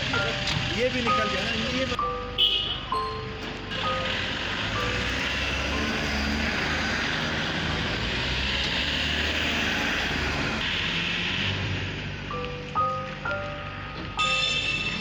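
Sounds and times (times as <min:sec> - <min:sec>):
engine droning: 0:03.2 - 0:15.0.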